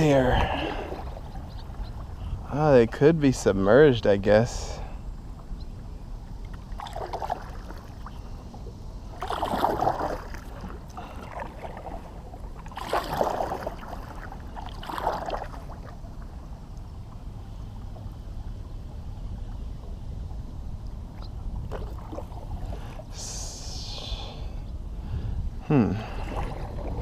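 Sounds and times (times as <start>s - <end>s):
kayak paddle splashing in water: 6.6s - 8.2s, 9.1s - 16.0s, 26.1s - 27.0s.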